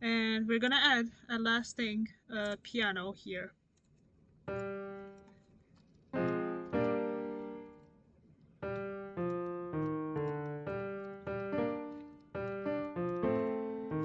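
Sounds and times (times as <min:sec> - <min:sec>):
piano chords: 0:04.5 - 0:05.3, 0:06.1 - 0:07.9, 0:08.6 - 0:14.0.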